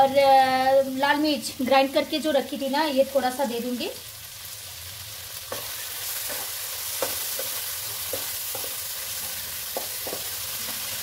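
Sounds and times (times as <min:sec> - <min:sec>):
paste sizzling in oil: 0:00.3 - 0:11.0
utensil tapping pan: 0:05.5 - 0:10.4.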